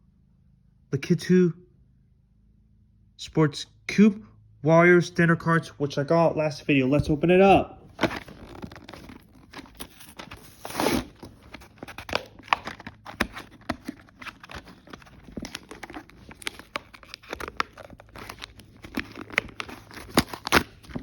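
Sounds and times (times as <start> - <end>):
packaging tearing and crinkling: 7.9 - 21.0.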